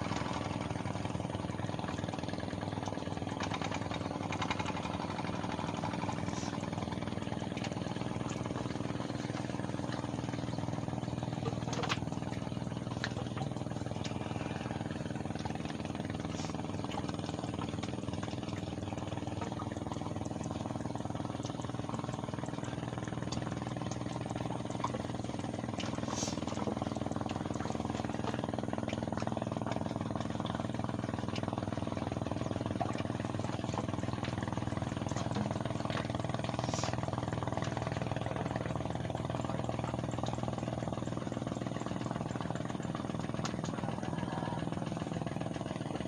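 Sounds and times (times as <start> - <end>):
engine running steadily: 0.0 - 46.0.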